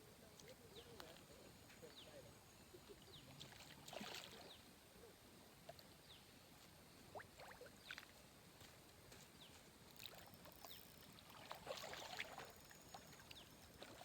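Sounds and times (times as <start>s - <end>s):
faint chirps and clicks: 9.4s - 11.4s, 12.4s - 13.9s.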